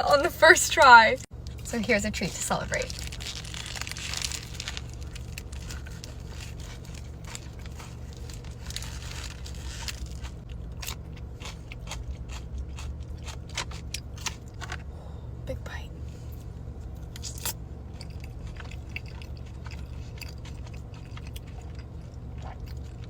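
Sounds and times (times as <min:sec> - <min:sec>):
steady low hum: 0:00.0 - 0:23.0
paper wrapper crinkling: 0:02.3 - 0:10.4
eating crunches: 0:02.8 - 0:14.8, 0:17.0 - 0:23.0.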